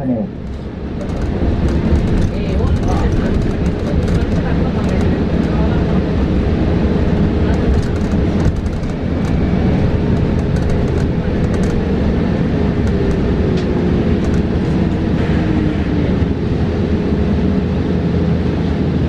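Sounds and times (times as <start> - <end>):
road and tyre noise: 0.0 - 19.0
light rattles and clicks: 0.4 - 5.9, 7.4 - 11.9, 12.8 - 15.0.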